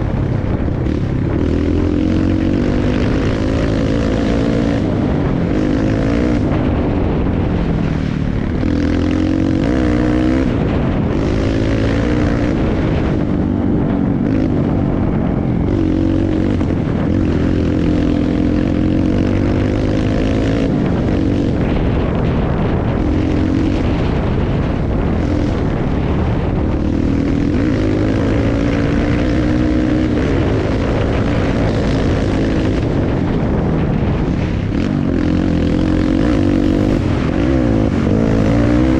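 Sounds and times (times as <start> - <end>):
dirt bike engine revving: 0.0 - 38.9
wind rush on microphone: 0.0 - 38.9.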